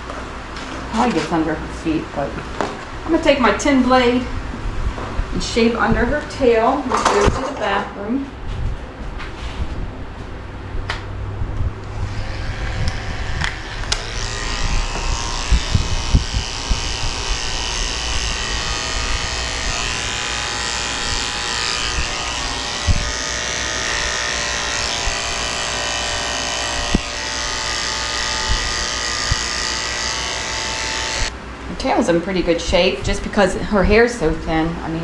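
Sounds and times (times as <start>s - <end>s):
electric clippers running: 11.8s - 31.4s.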